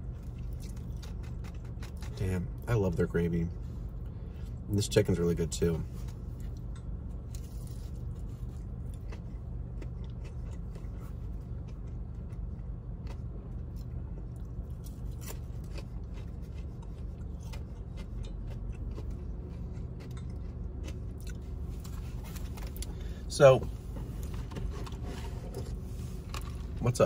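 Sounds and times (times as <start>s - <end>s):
chewing crispy chicken: 0.0s - 4.6s, 5.8s - 23.2s
steady low hum: 0.0s - 27.0s.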